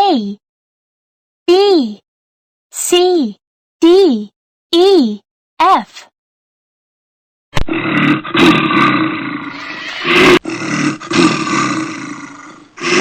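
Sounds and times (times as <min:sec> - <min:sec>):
large animal roaring: 0:07.6 - 0:13.0.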